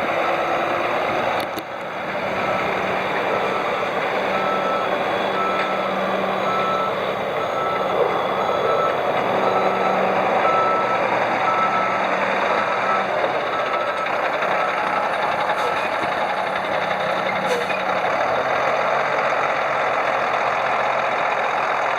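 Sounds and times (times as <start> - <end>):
truck engine running: 0.0 - 21.9
reverse alarm beeping: 2.4 - 17.5.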